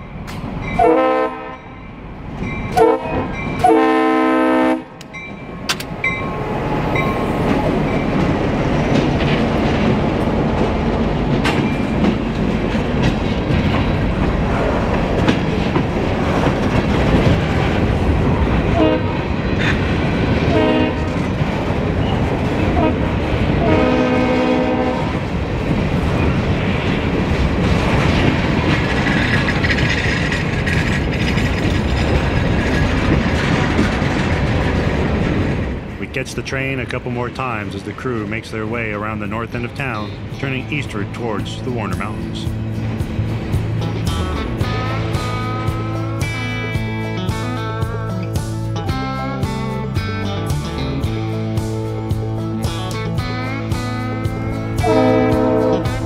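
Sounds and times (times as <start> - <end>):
freight train rumbling over rails: 0.0 - 56.0
locomotive horn blasts: 0.8 - 1.8, 2.7 - 5.1, 18.7 - 19.3, 20.5 - 21.2, 22.7 - 25.2, 54.8 - 56.0.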